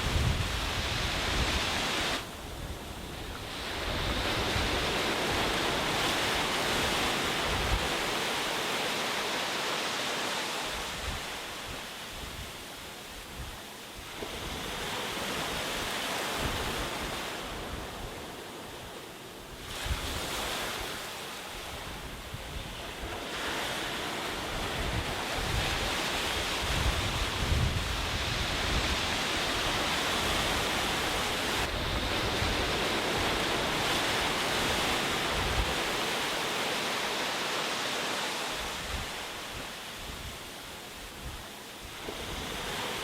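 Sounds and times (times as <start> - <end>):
wind buffeting microphone: 0.0 - 8.2, 21.6 - 36.4
sea waves breaking on beach: 0.0 - 43.0.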